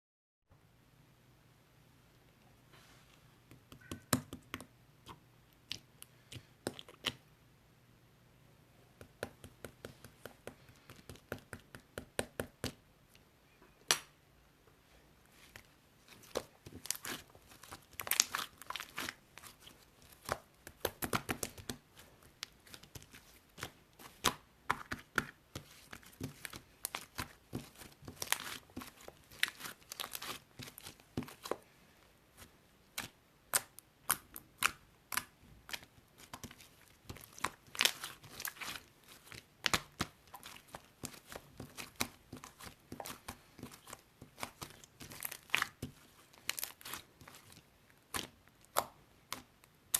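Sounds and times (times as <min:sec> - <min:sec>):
thin material crinkling: 0:35.7 - 0:48.8.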